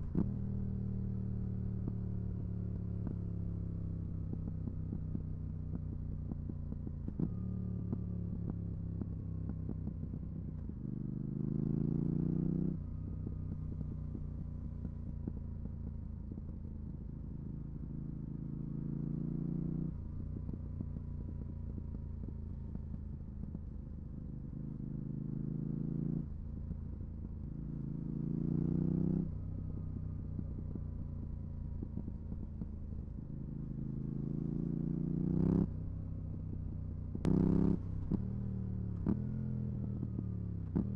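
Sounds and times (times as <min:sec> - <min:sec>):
motorcycle engine revving: 0:33.4 - 0:40.9.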